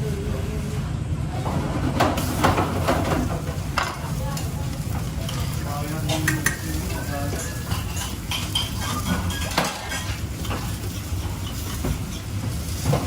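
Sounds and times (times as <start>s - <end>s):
metal utensils clinking on pots: 3.0s - 13.0s.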